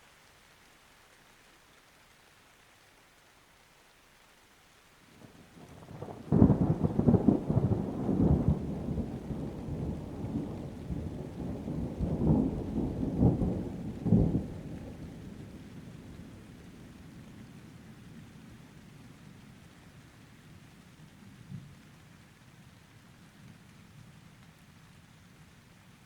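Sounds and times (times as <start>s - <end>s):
light rain: 0.0s - 26.0s
thunder cracking and rumbling: 5.6s - 16.4s.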